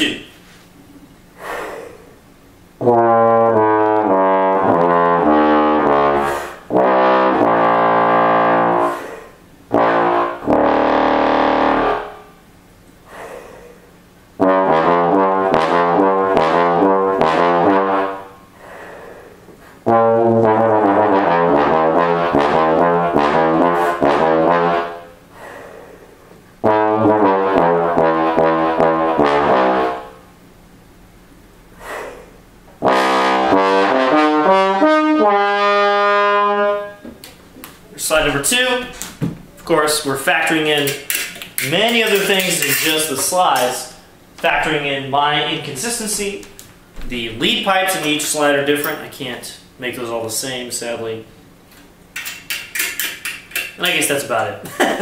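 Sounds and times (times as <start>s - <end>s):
bass trombone playing: 2.8s - 12.5s, 14.3s - 18.5s, 19.8s - 25.3s, 26.6s - 30.4s, 32.8s - 37.0s, 39.8s - 46.2s.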